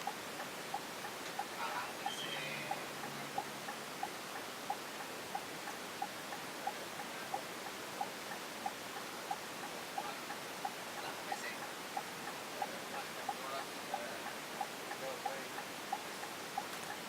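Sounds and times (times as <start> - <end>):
turn signal ticking: 0.0 - 17.0.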